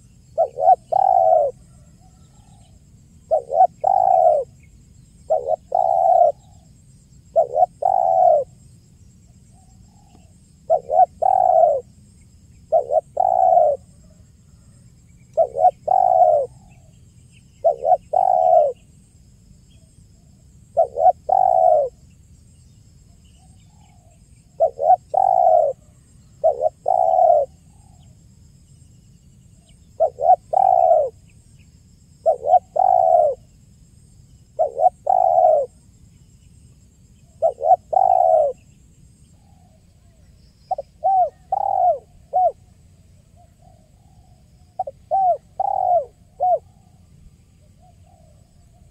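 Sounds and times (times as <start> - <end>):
dove cooing: 0.0 - 8.6, 9.5 - 11.9, 12.7 - 16.9, 17.6 - 18.9, 20.7 - 22.0, 23.4 - 28.1, 29.6 - 31.2, 32.2 - 33.5, 34.6 - 35.8, 37.3 - 38.8, 39.4 - 42.7, 43.4 - 47.0, 47.6 - 48.9.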